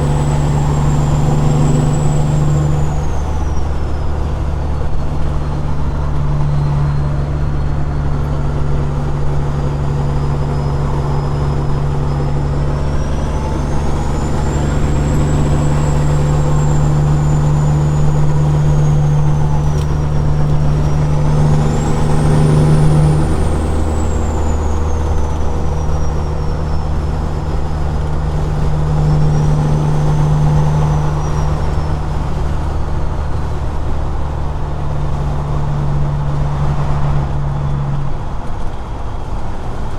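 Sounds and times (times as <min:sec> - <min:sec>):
thin high whistle: 0:00.0 - 0:04.2, 0:10.2 - 0:32.4
truck diesel engine droning: 0:00.0 - 0:39.9.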